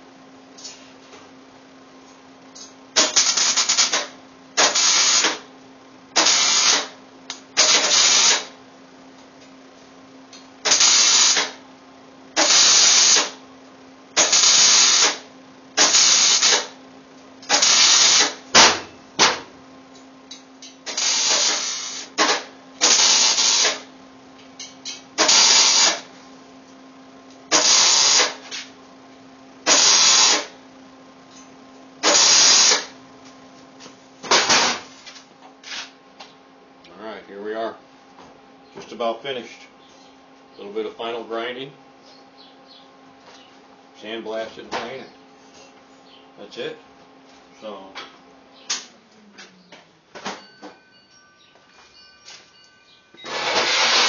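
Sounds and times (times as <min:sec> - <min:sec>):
steady low hum: 0:00.0 - 0:54.0
welder stitch-welding bursts: 0:03.0 - 0:05.5, 0:06.2 - 0:08.6, 0:10.6 - 0:11.6, 0:12.4 - 0:13.4, 0:14.2 - 0:16.8, 0:17.4 - 0:18.7, 0:20.8 - 0:23.9, 0:25.2 - 0:26.1, 0:27.5 - 0:28.6, 0:29.6 - 0:30.6, 0:32.0 - 0:33.0, 0:53.2 - 0:54.0.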